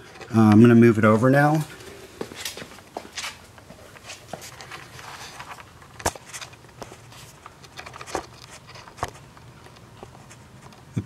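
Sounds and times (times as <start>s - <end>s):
footsteps: 0.0s - 10.8s.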